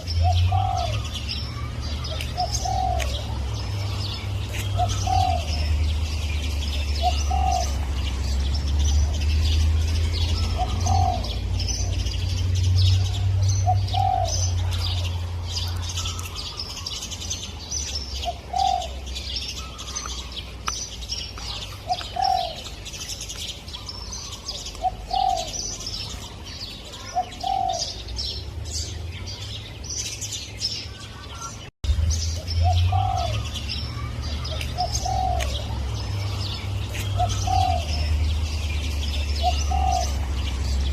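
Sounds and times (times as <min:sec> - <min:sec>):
dove cooing: 0:00.0 - 0:05.9, 0:06.7 - 0:08.0, 0:10.3 - 0:12.1, 0:13.0 - 0:15.1, 0:18.2 - 0:20.2, 0:21.8 - 0:22.8, 0:23.8 - 0:25.8, 0:26.9 - 0:28.0, 0:32.6 - 0:36.0, 0:37.0 - 0:38.3, 0:39.1 - 0:40.7
small birds chirping: 0:00.0 - 0:40.9.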